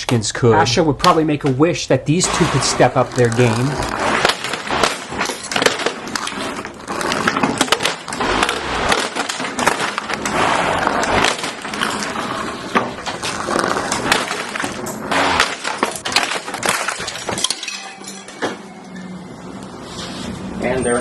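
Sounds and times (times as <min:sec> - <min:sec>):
plastic cracking and clattering: 0:02.4 - 0:18.6.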